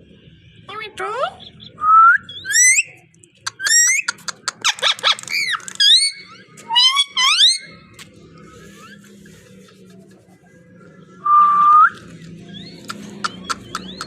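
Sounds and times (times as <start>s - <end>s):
parrot whistling: 1.6s - 7.8s
parrot chattering: 2.3s - 7.8s, 12.6s - 14.0s
parrot clicking: 3.2s - 6.0s, 12.8s - 14.0s.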